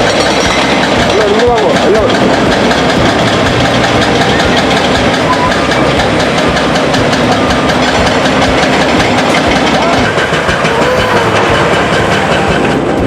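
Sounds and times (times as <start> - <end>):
diesel engine running loudly: 0.0 - 13.0.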